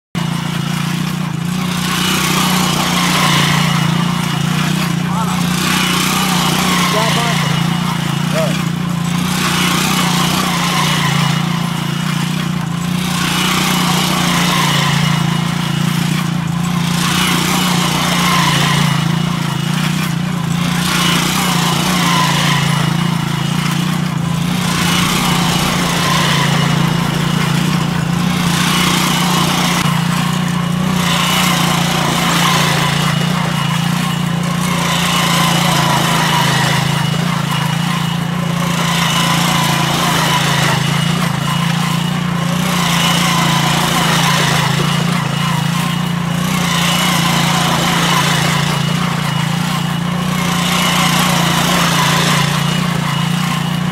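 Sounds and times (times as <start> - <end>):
motorcycle engine running under load: 0.0 - 53.9.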